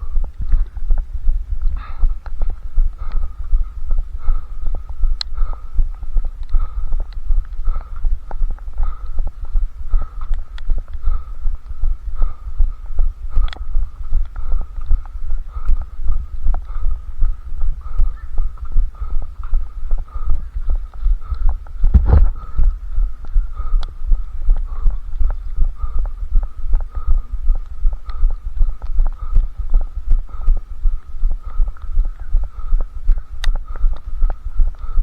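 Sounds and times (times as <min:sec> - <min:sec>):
runner's footfalls thudding: 0:21.9 - 0:22.4.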